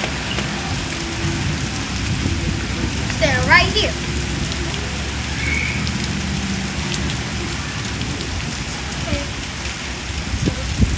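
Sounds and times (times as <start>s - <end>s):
heavy rain falling: 0.0s - 10.9s.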